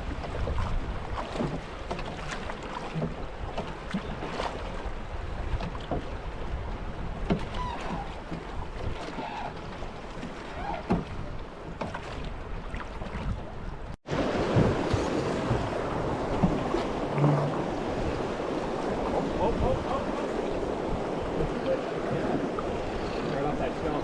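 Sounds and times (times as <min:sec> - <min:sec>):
wind on microphone: 0:12.1 - 0:24.0
river water rushing: 0:14.1 - 0:24.0.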